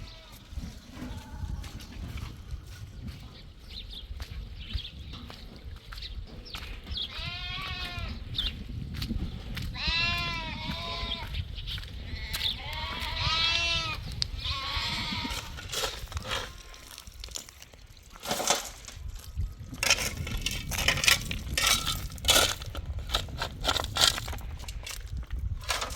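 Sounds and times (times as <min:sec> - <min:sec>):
goats bleating: 0:07.1 - 0:08.2, 0:09.8 - 0:11.3, 0:12.1 - 0:15.7
sharp crunching knocks: 0:15.0 - 0:25.9.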